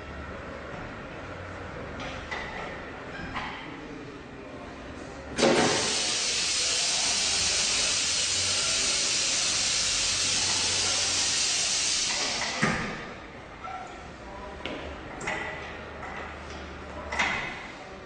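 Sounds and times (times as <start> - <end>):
pneumatic knock: 5.4 - 6.4, 11.8 - 13.1
compressed air hissing: 5.4 - 12.6.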